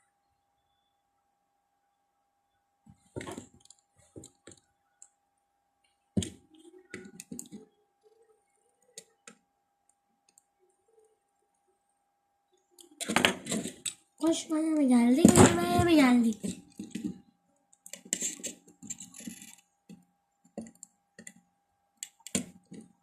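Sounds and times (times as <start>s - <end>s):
faint steady tone: 0.0s - 2.8s, 3.6s - 13.0s.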